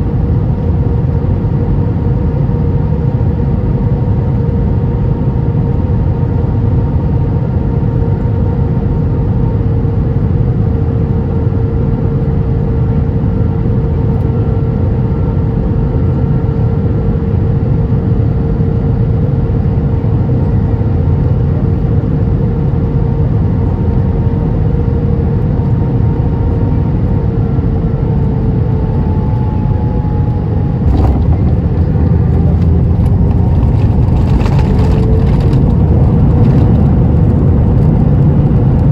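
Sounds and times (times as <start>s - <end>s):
airplane cabin rumble: 0.0s - 38.9s
jet engine whine: 0.0s - 38.9s
wheels touching down jolt: 30.8s - 37.1s.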